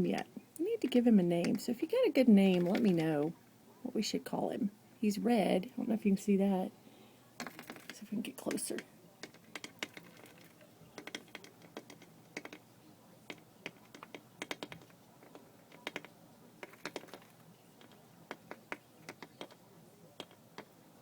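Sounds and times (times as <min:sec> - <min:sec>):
bird pecking at window glass: 0:02.5 - 0:03.3, 0:07.4 - 0:21.0.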